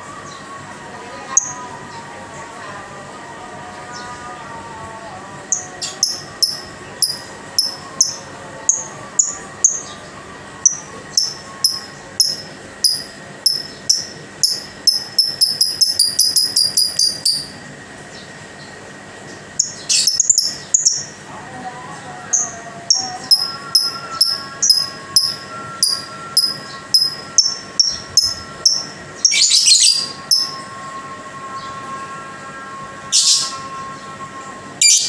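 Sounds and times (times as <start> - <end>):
lovebird chirping: 5.8 - 9.8, 10.7 - 17.6, 19.6 - 21.1, 22.4 - 30.6.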